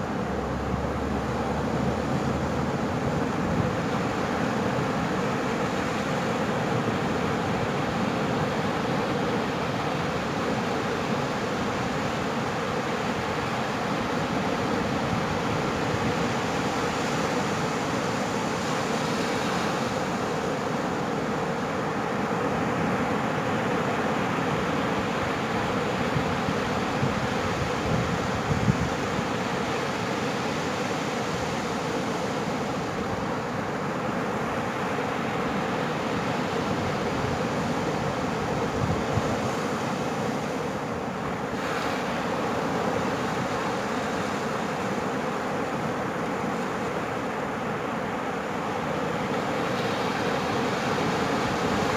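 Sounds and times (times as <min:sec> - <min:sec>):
ocean surf breaking: 0:00.0 - 0:51.9
wind buffeting microphone: 0:26.2 - 0:29.1, 0:36.7 - 0:39.6.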